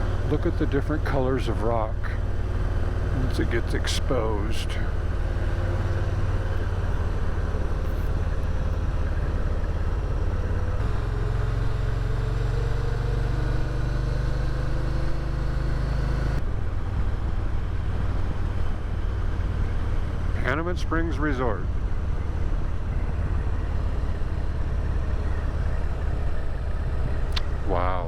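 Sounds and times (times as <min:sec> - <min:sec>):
motorcycle engine running: 0:00.0 - 0:28.0
road noise: 0:00.0 - 0:28.0.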